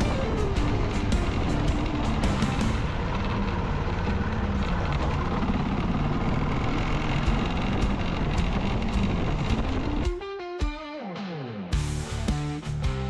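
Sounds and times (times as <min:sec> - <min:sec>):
plucked guitar music: 0:00.0 - 0:03.0, 0:07.2 - 0:13.0
wind buffeting microphone: 0:00.0 - 0:10.0
motorcycle engine rumbling: 0:00.0 - 0:10.2.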